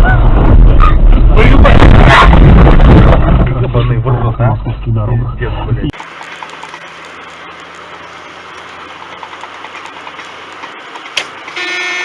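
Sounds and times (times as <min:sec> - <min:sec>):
vehicle running noise from inside: 0:00.0 - 0:12.0
vehicle horn long blast: 0:11.5 - 0:12.0.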